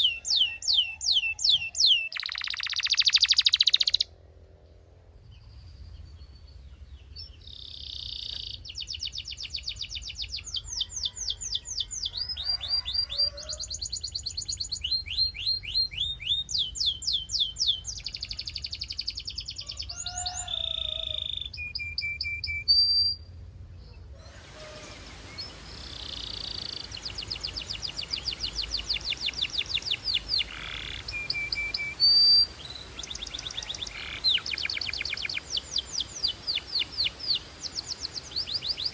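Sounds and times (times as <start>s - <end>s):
canary singing trills: 0.0s - 4.1s, 7.2s - 23.3s, 23.9s - 38.9s
background hiss: 24.2s - 38.9s.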